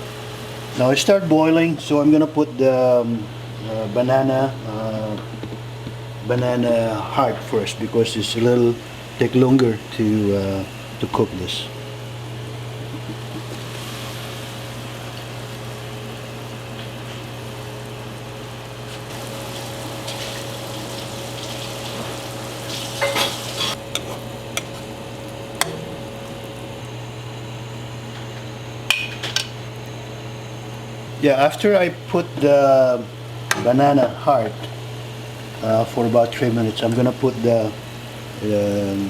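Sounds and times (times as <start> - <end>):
constant low hum: 0.0 - 39.0
water boiling in pot: 10.8 - 39.0.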